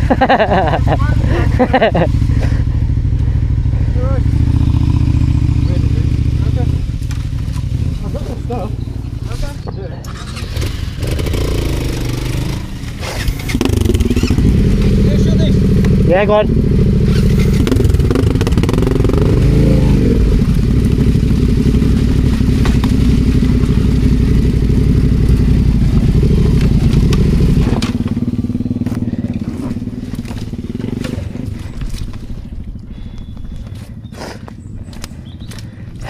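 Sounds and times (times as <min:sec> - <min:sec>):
motorcycle engine at low revs: 0:00.0 - 0:36.0
tyres crunching over loose stones: 0:17.1 - 0:36.0.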